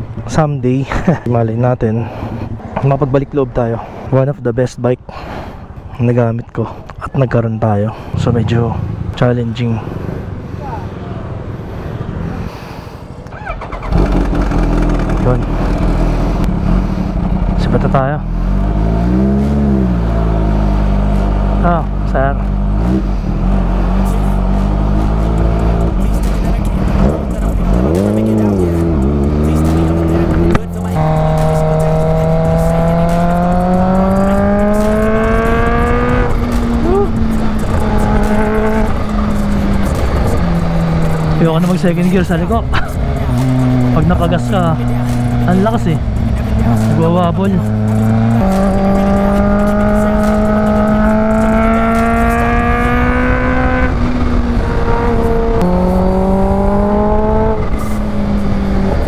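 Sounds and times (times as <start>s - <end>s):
motorcycle engine revving under load: 13.3s - 17.6s, 27.0s - 59.0s.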